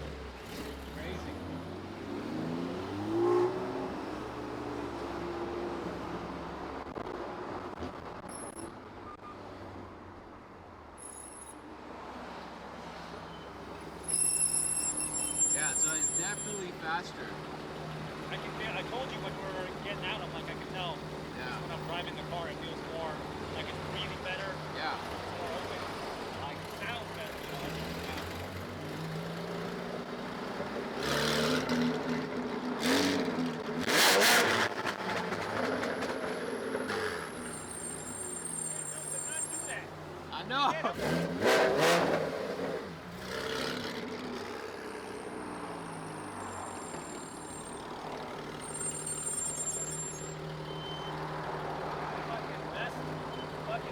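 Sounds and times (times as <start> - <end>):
short high-pitched squeaks: 8.2 - 9.2, 11.0 - 11.6, 13.3 - 16.7, 37.2 - 39.8, 45.9 - 51.3
car engine idling: 13.6 - 30.9, 44.0 - 53.9.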